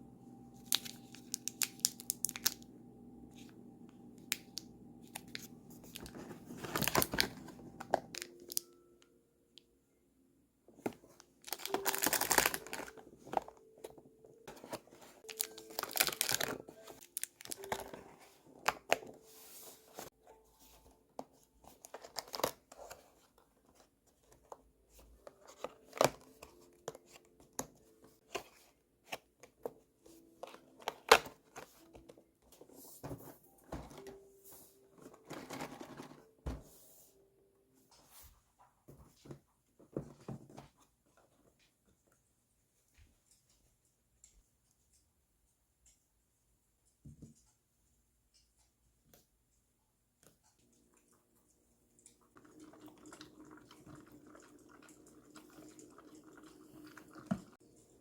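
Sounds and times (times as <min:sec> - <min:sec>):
packaging being torn and crinkled: 0:00.7 - 0:02.6, 0:05.1 - 0:08.6, 0:11.4 - 0:13.0, 0:15.2 - 0:18.0, 0:21.9 - 0:22.7.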